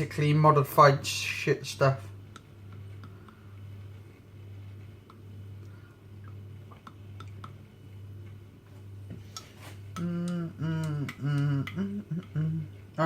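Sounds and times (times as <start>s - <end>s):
steady low hum: 0.0s - 13.0s
man humming: 9.4s - 13.0s.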